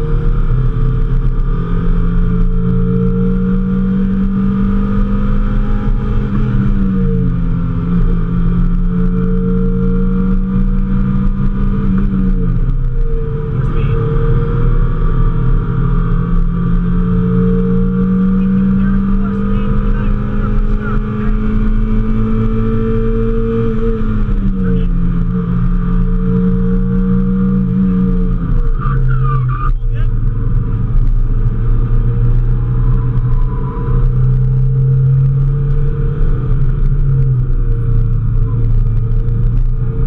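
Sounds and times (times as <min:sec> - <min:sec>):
car engine revving from inside: 0:00.0 - 0:40.0.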